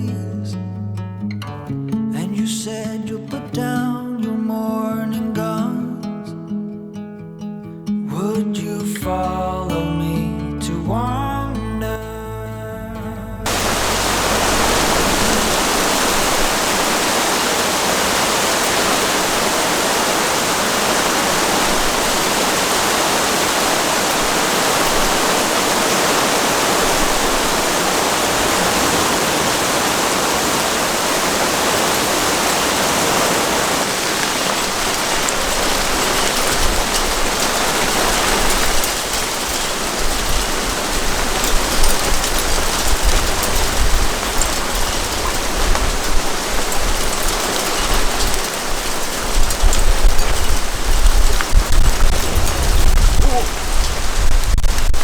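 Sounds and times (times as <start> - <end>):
steady rain hiss: 13.4 - 55.0
sharp water drops landing: 13.5 - 55.0.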